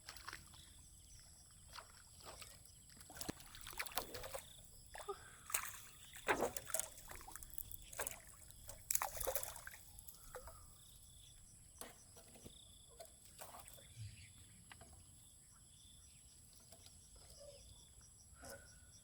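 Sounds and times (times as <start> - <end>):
water sloshing and splashing: 0.0 - 13.9.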